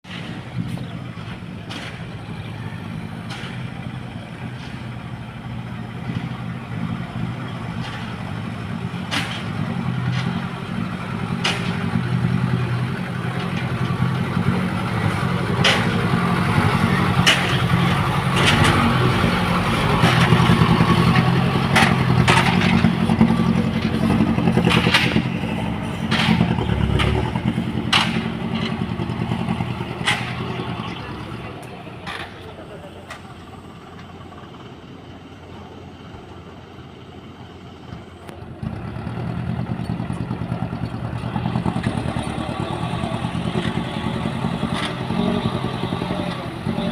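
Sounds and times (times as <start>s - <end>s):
diesel truck engine running: 0.0s - 46.9s
knocks and clatter: 1.2s - 2.2s, 3.2s - 4.9s, 9.0s - 30.8s.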